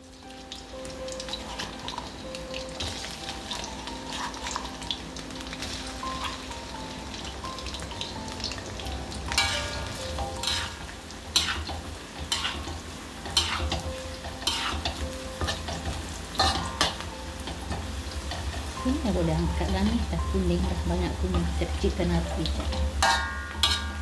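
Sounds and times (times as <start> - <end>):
aromatics sizzling in oil: 0.0 - 24.0
spatula scraping a wok: 9.4 - 17.0, 23.0 - 24.0.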